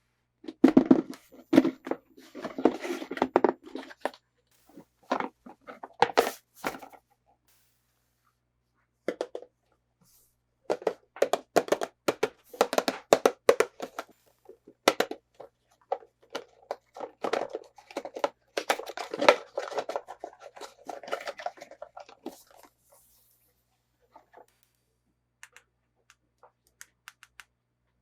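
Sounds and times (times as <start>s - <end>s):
plastic packaging crinkling: 15.8s - 22.8s.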